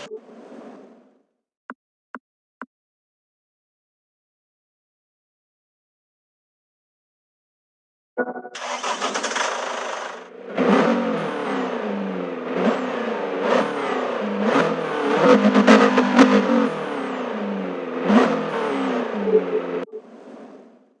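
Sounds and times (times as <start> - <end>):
engine revving: 8.6 - 20.8.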